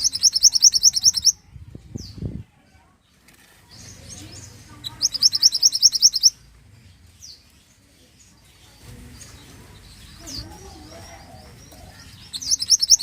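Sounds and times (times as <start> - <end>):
songbird trilling: 0.0 - 1.4, 4.1 - 6.4, 10.0 - 13.0.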